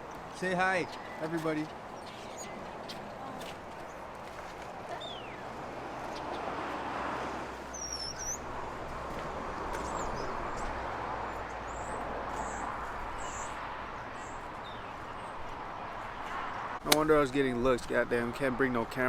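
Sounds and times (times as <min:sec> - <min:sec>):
faint high bird chirps: 0:04.9 - 0:05.4, 0:07.7 - 0:08.4.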